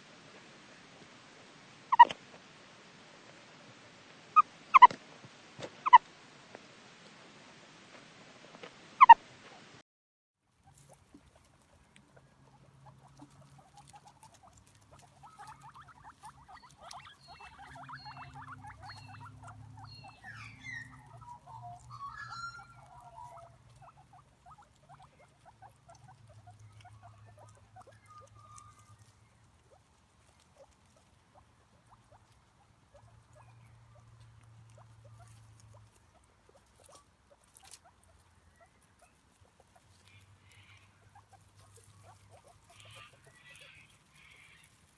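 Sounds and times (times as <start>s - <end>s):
small animal pattering and scratching: 10.5s - 44.9s
short high squeaks: 16.3s - 23.5s.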